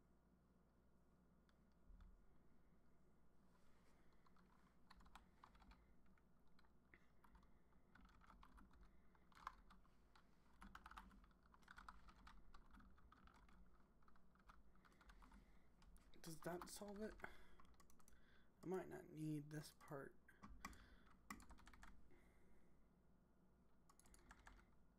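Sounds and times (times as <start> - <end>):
typing on computer keyboard: 4.2 - 5.8, 6.6 - 18.2, 20.4 - 22.0, 23.9 - 24.8.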